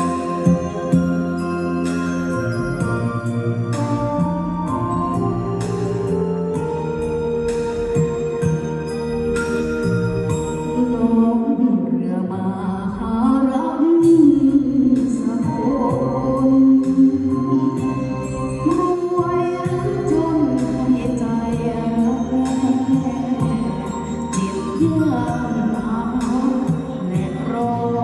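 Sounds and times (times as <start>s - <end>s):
instrumental backing track: 0.0s - 11.6s, 14.0s - 28.0s.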